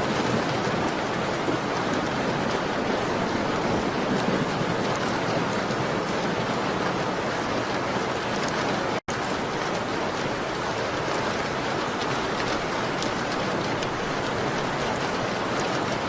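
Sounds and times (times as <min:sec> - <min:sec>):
rain on a window: 0:00.0 - 0:16.0
faint small crackles: 0:11.1 - 0:16.0.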